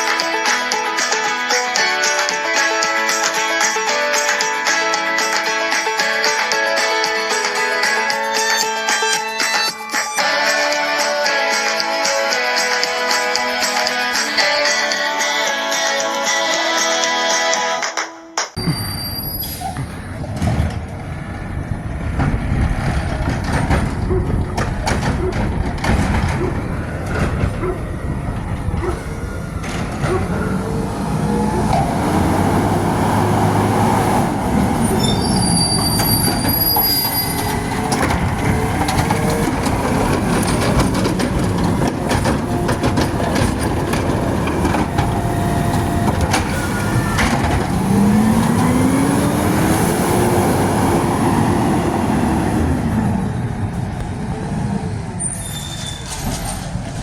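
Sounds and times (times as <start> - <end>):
high squeals from lifting gear: 8.3 - 10.6, 18.6 - 20.0, 34.8 - 39.4, 55.2 - 56.6
garbage truck engine revving: 18.6 - 57.0
metal knocks and clanks: 19.8 - 30.7, 34.4 - 49.0.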